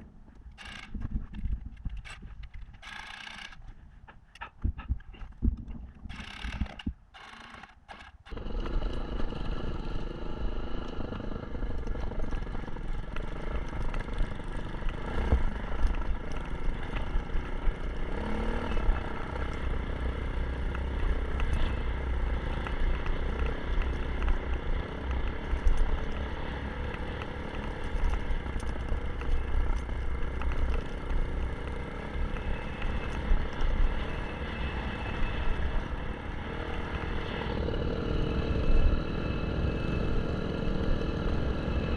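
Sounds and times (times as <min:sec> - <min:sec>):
dirt bike engine running: 0:04.4 - 0:41.9.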